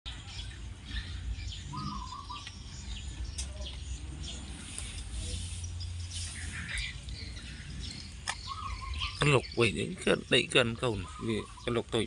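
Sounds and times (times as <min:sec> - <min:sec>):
puppies squeaking and whimpering: 0:00.9 - 0:02.8, 0:06.2 - 0:09.6.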